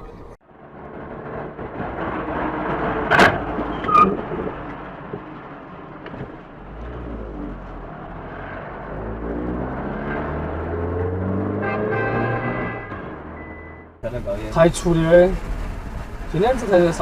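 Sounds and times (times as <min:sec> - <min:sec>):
vehicle engine running: 0:14.0 - 0:17.0.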